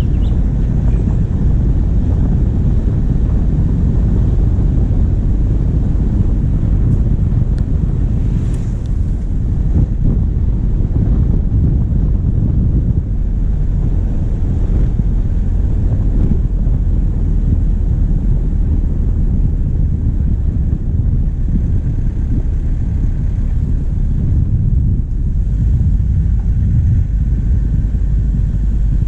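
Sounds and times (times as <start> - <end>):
diesel engine and tyres rumbling: 0.0 - 29.0
wind buffeting microphone: 0.0 - 29.0.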